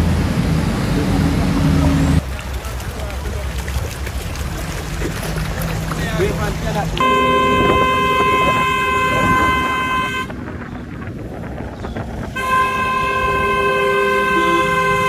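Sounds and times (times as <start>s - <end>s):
vehicle horn blast: 7.0s - 10.4s, 12.3s - 15.0s.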